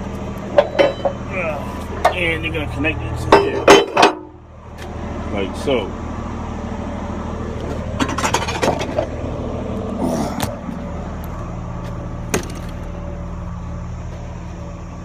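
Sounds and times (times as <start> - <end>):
diesel engine idling: 0.0 - 15.0
metal clanks and rattles: 0.5 - 1.3, 3.2 - 4.4, 7.7 - 9.2
scraping clank: 0.5 - 1.3, 3.2 - 4.4, 8.0 - 9.1.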